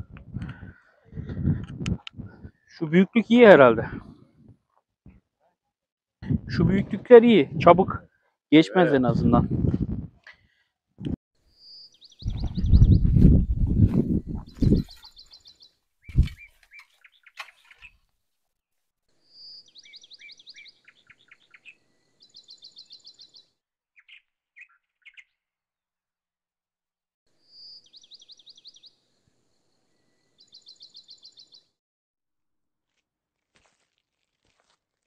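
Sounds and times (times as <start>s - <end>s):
songbird singing trills: 11.5s - 13.3s, 14.1s - 18.0s, 19.3s - 25.4s, 27.5s - 29.0s, 30.4s - 31.7s.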